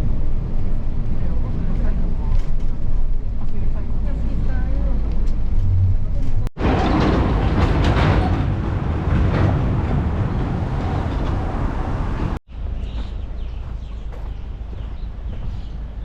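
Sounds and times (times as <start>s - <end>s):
vehicle rumble with rattling hiss: 8.0s - 13.9s.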